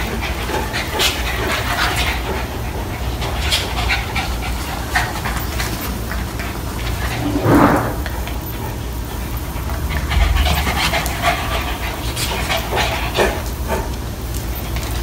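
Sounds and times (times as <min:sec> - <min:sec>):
dogs panting: 0:00.0 - 0:07.4, 0:08.0 - 0:15.0
loud short noise: 0:07.2 - 0:08.1.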